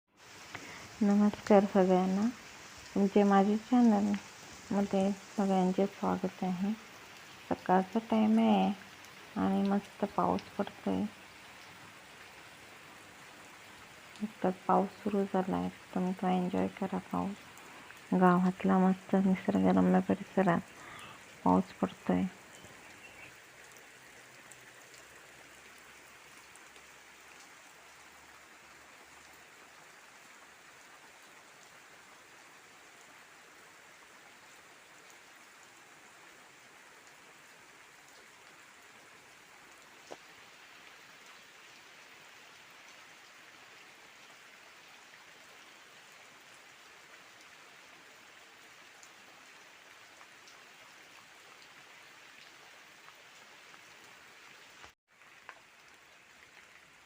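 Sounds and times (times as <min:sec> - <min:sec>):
rain hissing: 0:00.1 - 0:57.0
raindrops ticking: 0:00.3 - 0:31.8, 0:34.4 - 0:43.5, 0:54.6 - 0:57.0.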